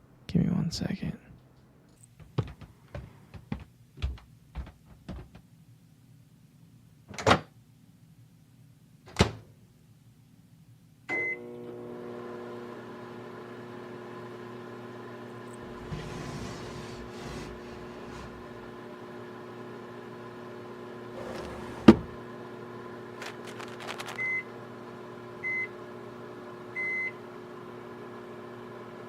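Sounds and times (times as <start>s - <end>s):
microwave oven humming: 11.1s - 29.0s.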